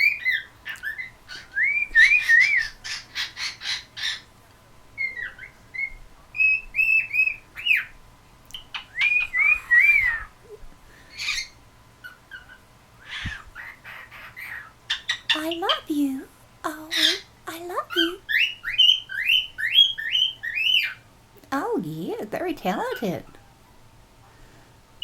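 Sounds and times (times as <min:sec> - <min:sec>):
cockatiel whistling: 0:00.0 - 0:03.3, 0:08.6 - 0:10.3
harsh bird chirps: 0:08.6 - 0:10.4, 0:16.7 - 0:21.1.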